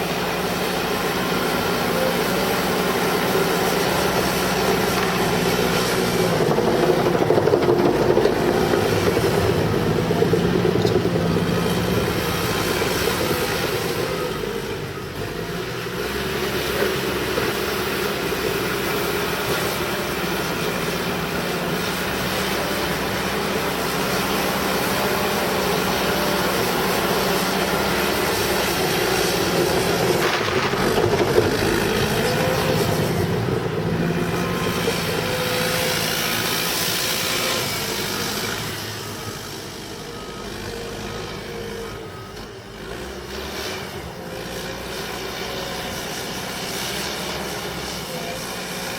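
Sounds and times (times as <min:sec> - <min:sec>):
bulldozer diesel engine under load: 0:00.0 - 0:48.9.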